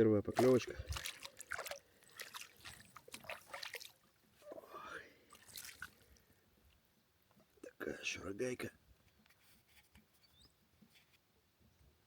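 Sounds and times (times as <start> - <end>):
small splashes: 0.3 - 4.2, 5.3 - 6.3
water dripping: 0.4 - 4.1, 5.3 - 6.3.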